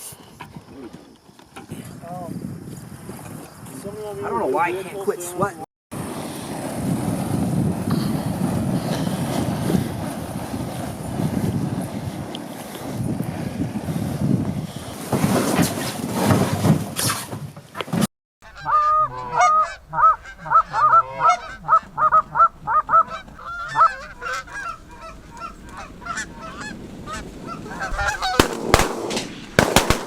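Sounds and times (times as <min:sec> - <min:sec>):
wind buffeting microphone: 0:01.6 - 0:16.5, 0:18.8 - 0:30.0
geese honking: 0:18.4 - 0:29.0.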